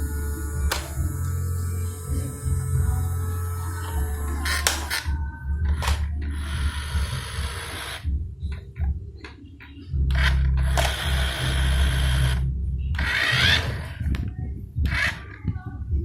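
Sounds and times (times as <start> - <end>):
toy truck motor whirring: 0.0 - 5.1, 5.8 - 8.0, 10.2 - 12.4, 13.0 - 14.0, 14.9 - 15.2
clicks: 0.0 - 6.2.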